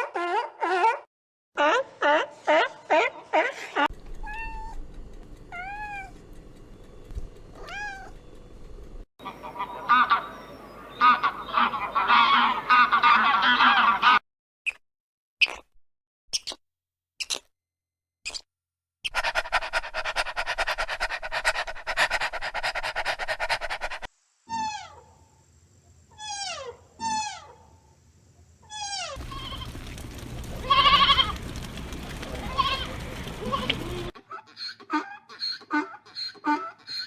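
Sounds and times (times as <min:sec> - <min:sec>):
animal calls falling in pitch: 0:28.7 - 0:34.1
rapid pulsing animal sound: 0:28.8 - 0:34.2.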